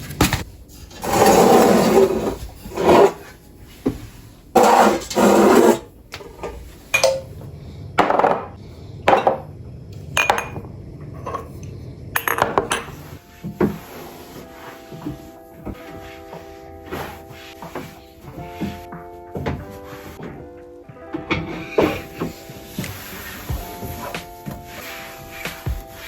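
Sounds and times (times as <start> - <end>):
jars clinking and knocking: 9.1 - 9.4, 10.2 - 11.5, 12.2 - 12.9.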